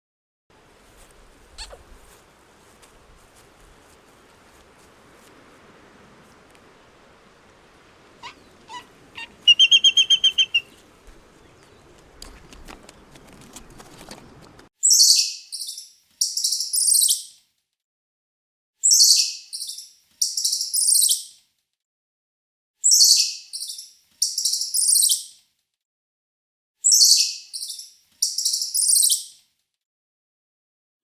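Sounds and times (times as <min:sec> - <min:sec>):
small bird singing trills: 0:08.1 - 0:12.5
light clicks: 0:11.0 - 0:14.7.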